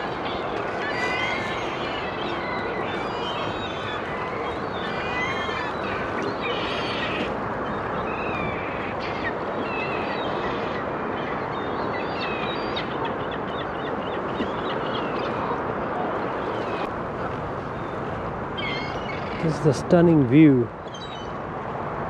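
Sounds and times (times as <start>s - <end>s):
waterfowl honking and squawking: 0.0s - 7.4s.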